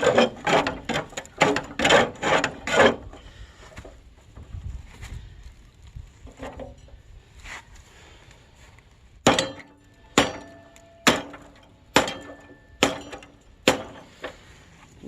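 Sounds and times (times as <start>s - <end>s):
metal-on-metal blows ringing: 9.2s - 14.1s.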